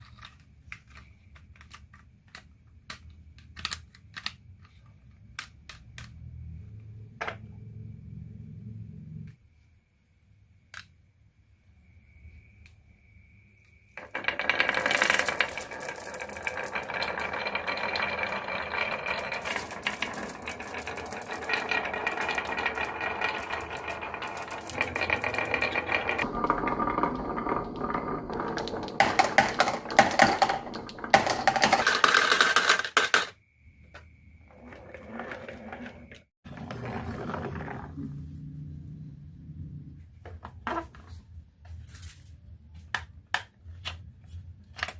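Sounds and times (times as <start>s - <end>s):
marbles rattling down a marble run: 14.0s - 33.3s.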